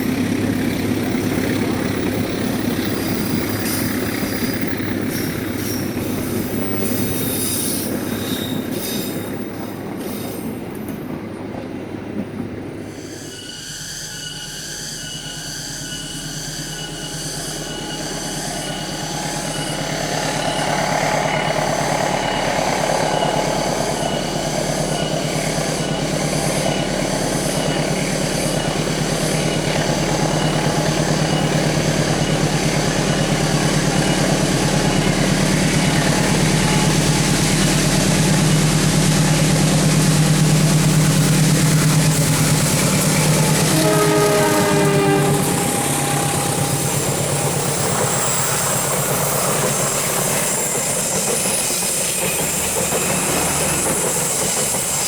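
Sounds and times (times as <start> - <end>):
diesel locomotive engine drone: 0.0 - 55.0
rail and wheel noise: 0.0 - 55.0
repeating high ringing tone: 44.8 - 49.6.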